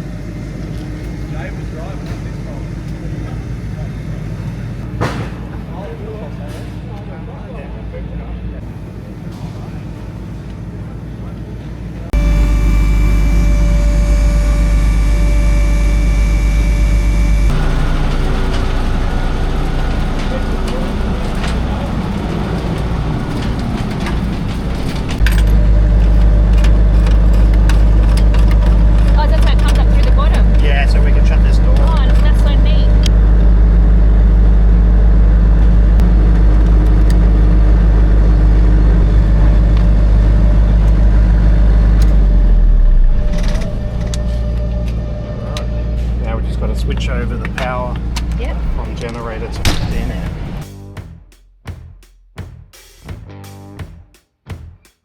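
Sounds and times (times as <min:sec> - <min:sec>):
heavy engine running: 0:00.0 - 0:51.2
thin steady whine: 0:11.9 - 0:21.8, 0:25.2 - 0:36.2
lighter engine noise: 0:12.2 - 0:21.7.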